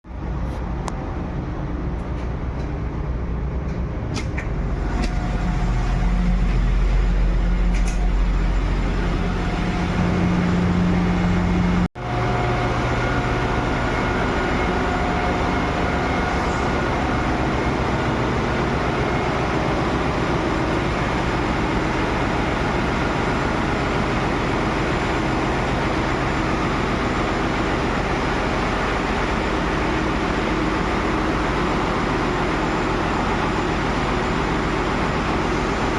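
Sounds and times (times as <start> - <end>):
ship engine room machinery drone: 0.1 - 35.9.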